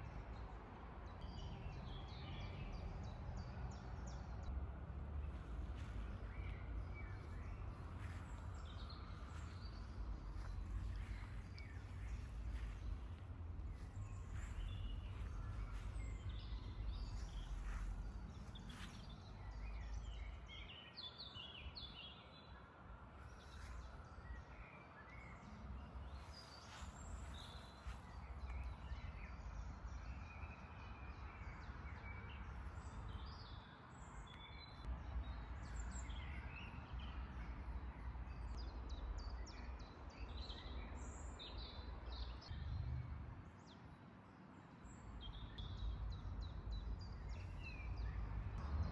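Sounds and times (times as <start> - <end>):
songbirds singing and chirping: 0.0 - 4.6, 5.2 - 42.9, 43.5 - 48.9
low steady rumble: 4.4 - 20.5.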